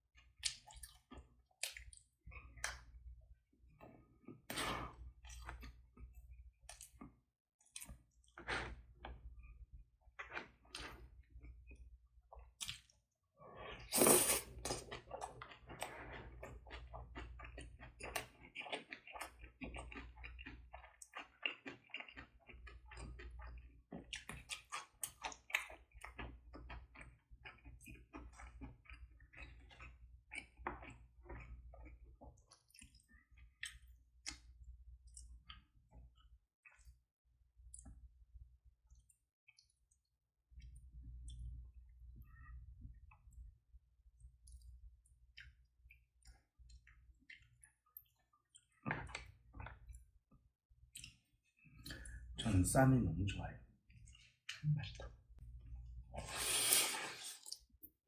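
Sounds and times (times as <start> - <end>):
wet chewing and smacking: 0.2 - 3.1, 3.7 - 13.9, 14.6 - 38.2, 38.9 - 52.4, 53.9 - 55.8.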